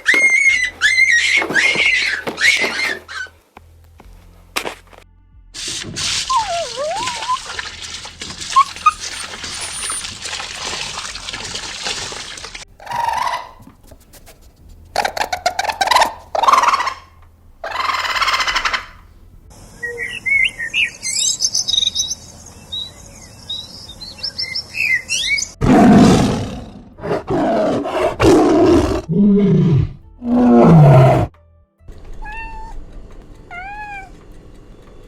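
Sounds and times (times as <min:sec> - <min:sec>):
animal sound clips: 0:00.0 - 0:03.3, 0:05.6 - 0:17.1, 0:31.9 - 0:35.0
quick high bird chirps: 0:19.7 - 0:25.6.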